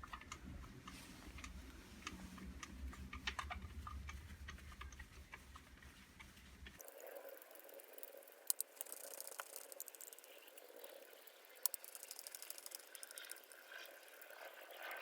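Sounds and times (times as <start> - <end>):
fast light ticking: 6.8 - 14.4
small mechanical parts clicking: 6.8 - 14.9.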